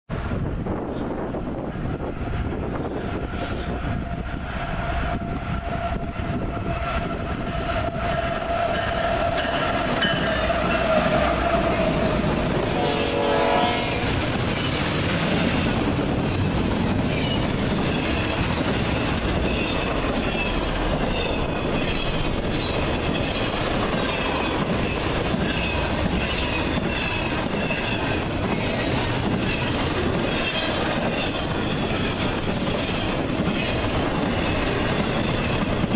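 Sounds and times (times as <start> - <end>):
train rumble passing: 0.1 - 35.9
locomotive horn: 10.4 - 14.2.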